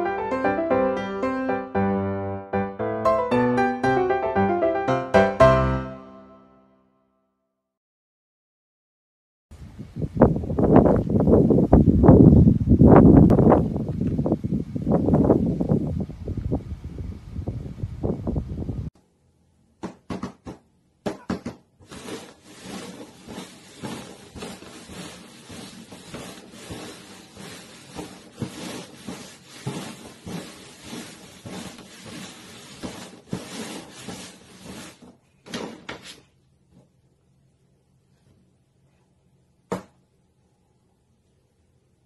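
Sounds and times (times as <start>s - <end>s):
wind noise: 9.5s - 18.9s.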